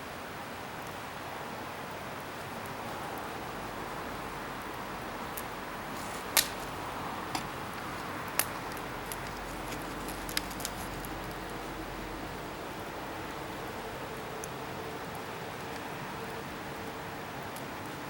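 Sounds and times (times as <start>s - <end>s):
bonfire burning with rushing hiss: 0.1s - 18.0s
wood popping in fire: 5.3s - 11.8s.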